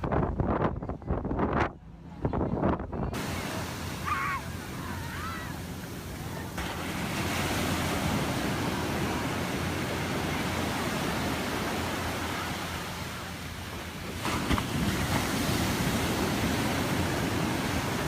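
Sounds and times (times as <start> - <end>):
wind buffeting microphone: 0.0 - 12.9
ocean surf washing in: 3.1 - 18.0.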